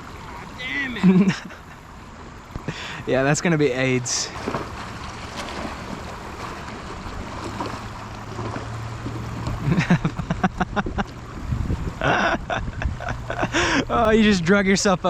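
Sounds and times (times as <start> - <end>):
river water around kayak: 0.0 - 15.0
wind: 0.0 - 15.0
knocks and scrapes against hull: 4.3 - 12.0.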